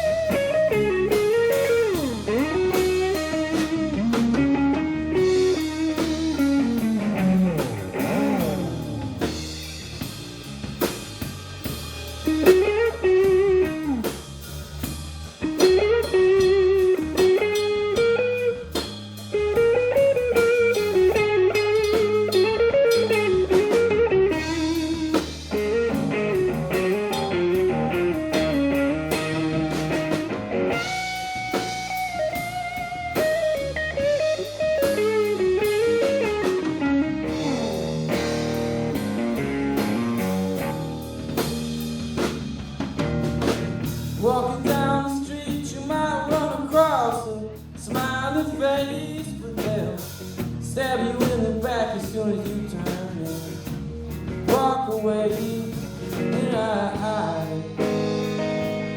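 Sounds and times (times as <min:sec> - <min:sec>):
electric guitar solo with bends: 0:00.0 - 0:09.6, 0:12.3 - 0:14.0, 0:15.4 - 0:18.7, 0:19.3 - 0:41.8, 0:57.7 - 0:58.9
steady low accompaniment: 0:00.0 - 0:21.6, 0:23.2 - 0:44.2
drums: 0:00.0 - 0:58.9.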